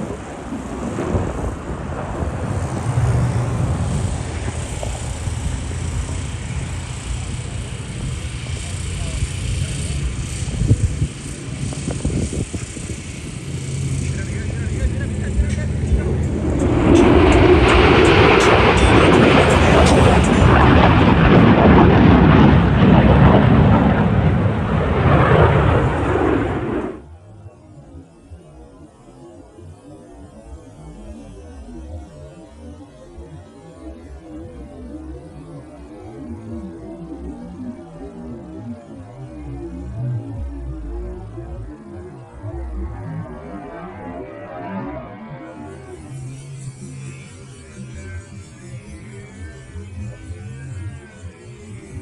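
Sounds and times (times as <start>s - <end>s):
jet fighter rumbling past: 0.0s - 27.1s.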